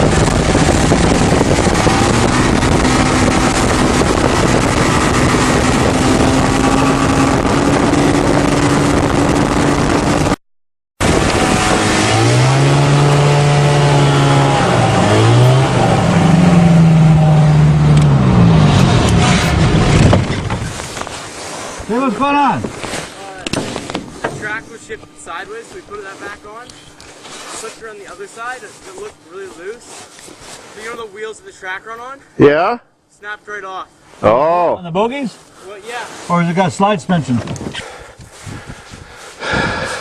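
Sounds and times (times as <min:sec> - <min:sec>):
engine revving: 0:00.0 - 0:10.4, 0:11.0 - 0:20.6.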